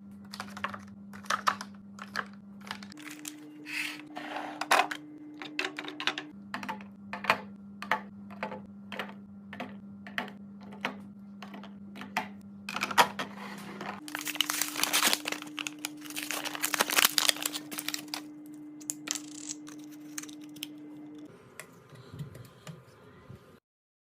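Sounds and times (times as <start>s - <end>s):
steady low hum: 0.0s - 22.8s
plastic packaging crinkling: 2.0s - 3.4s, 14.0s - 20.7s.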